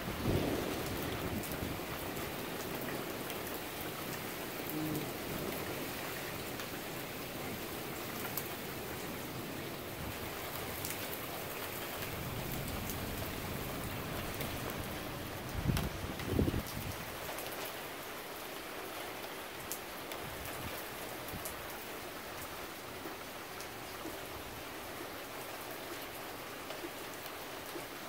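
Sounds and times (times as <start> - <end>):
steady rain: 0.0 - 28.0
faint raindrop ticks: 10.2 - 15.0, 15.7 - 17.7, 19.2 - 21.8.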